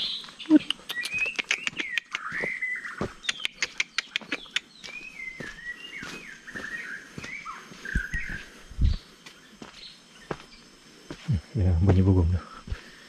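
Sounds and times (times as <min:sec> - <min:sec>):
bird singing whistled notes: 0:00.0 - 0:09.1
footsteps on trail: 0:00.0 - 0:13.0.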